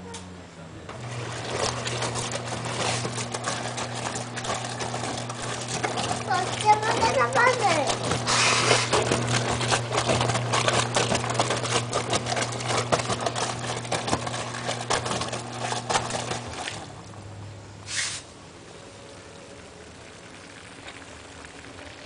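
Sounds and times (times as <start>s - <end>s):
washing machine motor hum: 0.0s - 22.0s
water churning and splashing: 1.0s - 17.3s
short hiss: 17.8s - 18.4s.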